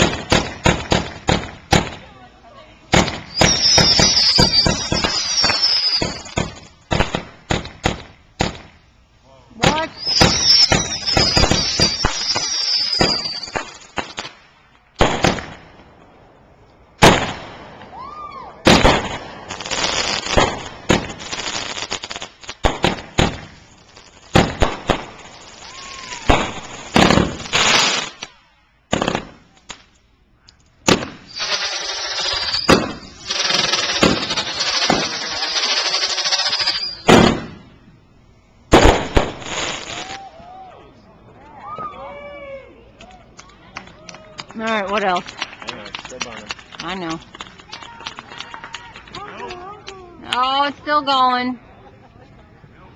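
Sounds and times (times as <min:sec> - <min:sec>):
fireworks bangs: 0:00.0 - 0:08.9, 0:09.6 - 0:29.9, 0:30.8 - 0:37.9, 0:38.7 - 0:40.3
fireworks crackling and hissing: 0:00.0 - 0:40.7, 0:42.8 - 0:52.9
firework whistles: 0:03.0 - 0:07.2, 0:09.7 - 0:14.2, 0:17.0 - 0:28.4, 0:30.9 - 0:37.7, 0:38.7 - 0:40.6.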